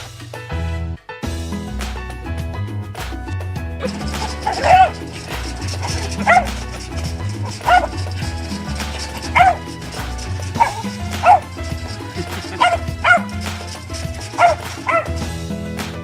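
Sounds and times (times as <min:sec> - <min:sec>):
background music with bass: 0:00.0 - 0:16.0
dog barking: 0:03.8 - 0:09.7, 0:10.6 - 0:11.5, 0:12.3 - 0:15.2.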